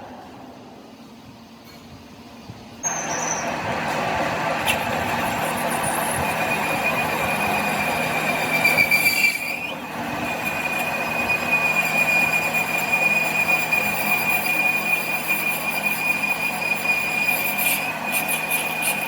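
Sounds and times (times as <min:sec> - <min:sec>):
high-pitched metallic squeal: 0:02.8 - 0:03.7, 0:04.6 - 0:19.0
machine noise: 0:02.8 - 0:19.0.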